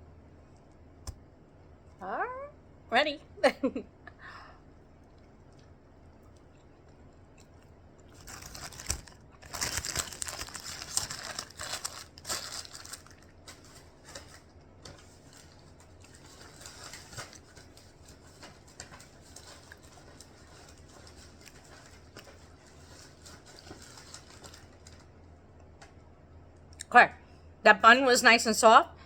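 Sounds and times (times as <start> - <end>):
crispy sandwich crackling: 5.2 - 25.3.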